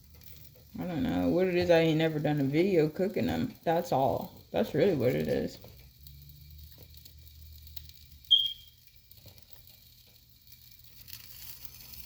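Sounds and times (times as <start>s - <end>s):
short high-pitched beep: 8.3s - 8.8s.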